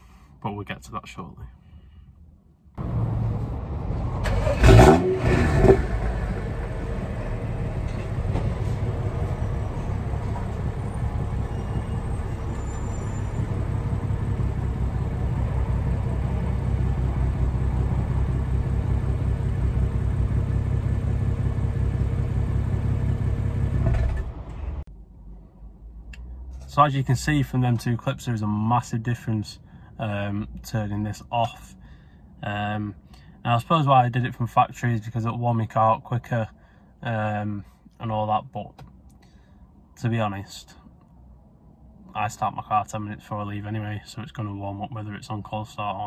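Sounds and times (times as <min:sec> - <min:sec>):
car engine idling: 0:05.9 - 0:24.6.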